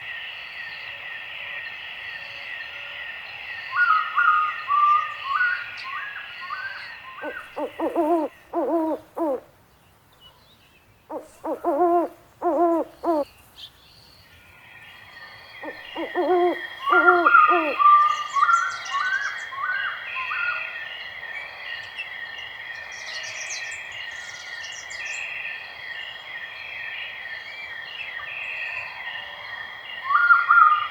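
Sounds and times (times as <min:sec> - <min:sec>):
insects chirping: 0:06.2 - 0:09.4, 0:11.1 - 0:14.2, 0:14.8 - 0:19.4
owl hooting: 0:07.2 - 0:09.5, 0:11.1 - 0:13.3, 0:15.6 - 0:18.0.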